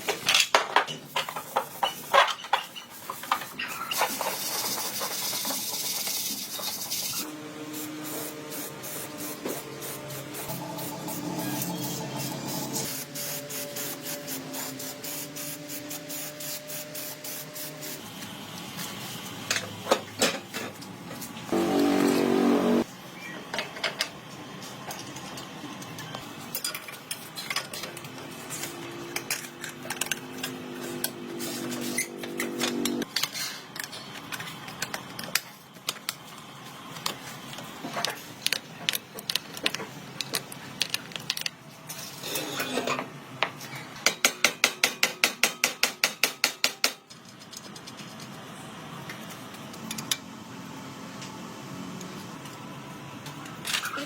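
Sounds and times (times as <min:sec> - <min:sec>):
steady hum: 0:21.5 - 0:22.9.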